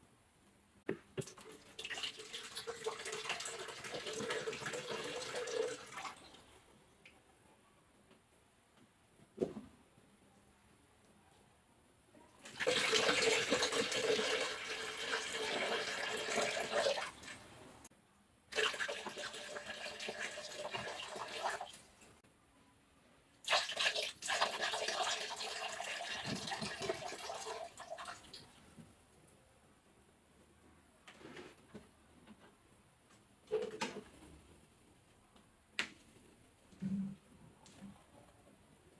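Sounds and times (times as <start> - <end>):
coconut water pouring into container: 1.3 - 6.3, 12.4 - 17.5, 18.5 - 21.9, 23.5 - 28.4.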